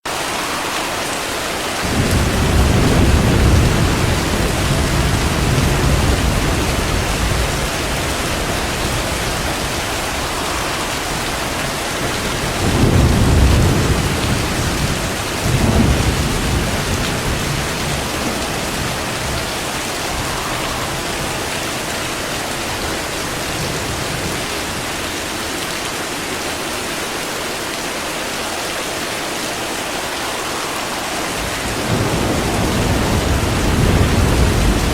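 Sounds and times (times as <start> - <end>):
steady rain: 0.0 - 34.9
thunder rumbling: 1.8 - 25.0, 30.3 - 34.9.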